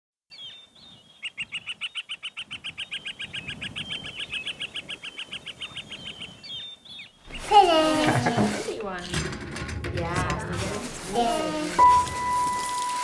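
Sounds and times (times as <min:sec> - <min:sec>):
bird chirps: 0:00.3 - 0:07.5
songbird trilling: 0:00.3 - 0:07.5.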